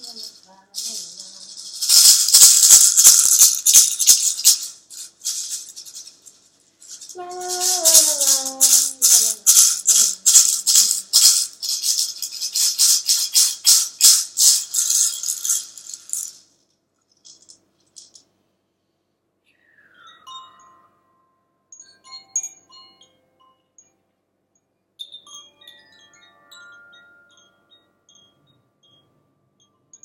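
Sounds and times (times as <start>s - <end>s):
wind chimes tinkling: 0.0s - 12.5s, 20.0s - 24.0s, 25.0s - 30.0s
shaker rattling: 0.0s - 18.3s.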